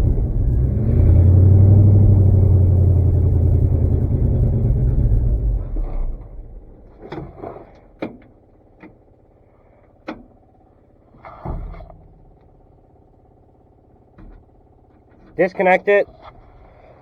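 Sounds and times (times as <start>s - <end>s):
truck engine running: 0.0s - 7.7s
clunks and knocks: 5.9s - 9.0s, 11.2s - 12.6s.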